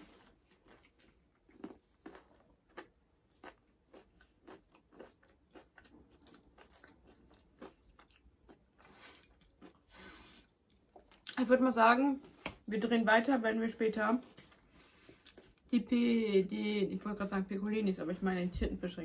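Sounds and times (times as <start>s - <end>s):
people chewing with soft crunches: 0.0s - 11.5s, 14.2s - 16.1s.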